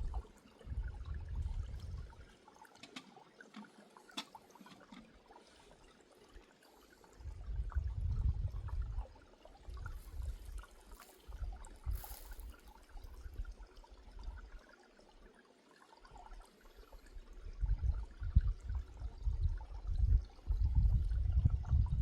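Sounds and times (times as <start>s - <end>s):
wind rumbling on microphone: 0.0s - 2.3s, 7.2s - 14.5s, 17.2s - 22.0s
flowing water rushing: 0.0s - 17.7s.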